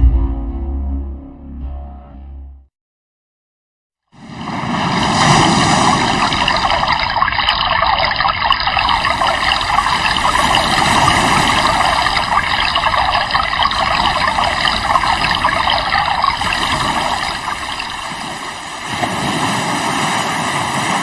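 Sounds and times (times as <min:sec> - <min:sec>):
river water rushing: 0:04.7 - 0:21.0.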